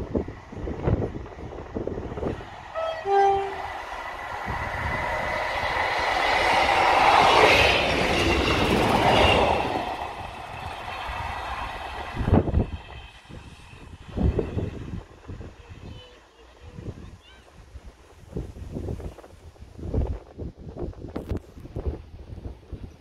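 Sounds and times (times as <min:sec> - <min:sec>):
train passing on rails: 0:00.0 - 0:23.0
wind buffeting microphone: 0:00.0 - 0:23.0
train horn: 0:02.7 - 0:03.7.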